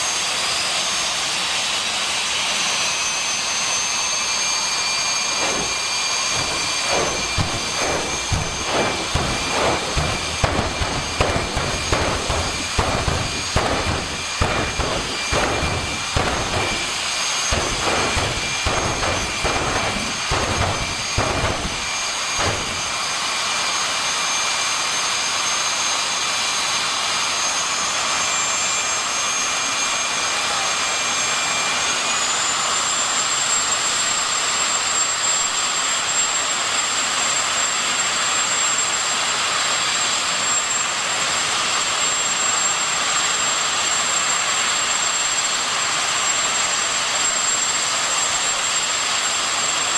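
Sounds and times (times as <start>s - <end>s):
jet engine whine and hiss: 0.0s - 49.9s
jet engine blasts: 2.8s - 24.6s.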